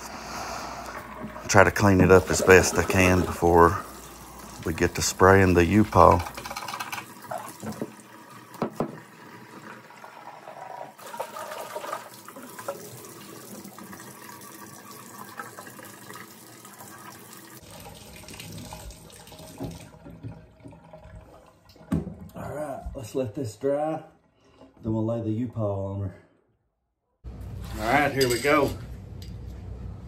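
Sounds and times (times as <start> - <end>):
water running from a tap: 0.8 - 22.0.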